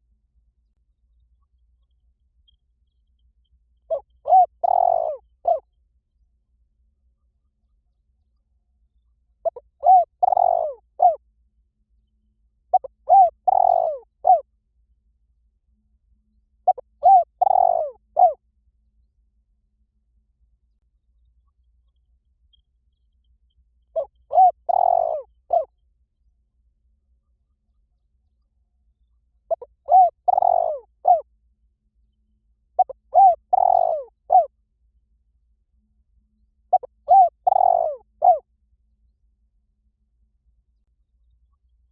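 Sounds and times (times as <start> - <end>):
dove cooing: 3.9 - 5.6, 9.4 - 11.2, 12.7 - 14.4, 16.6 - 18.4, 24.0 - 25.7, 29.5 - 31.2, 32.8 - 34.5, 36.7 - 38.4.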